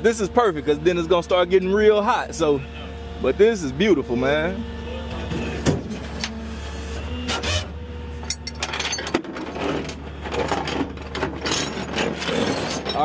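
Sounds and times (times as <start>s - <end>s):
vehicle engine idling: 9.5s - 11.8s
metal gear clicking and scraping: 11.4s - 13.0s.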